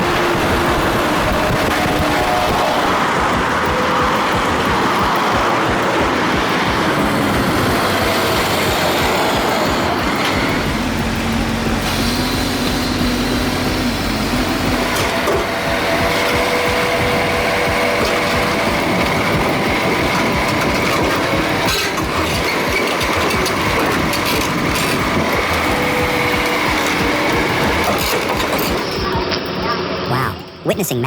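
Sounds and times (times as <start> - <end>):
heavy diesel machinery running: 0.0 - 29.6.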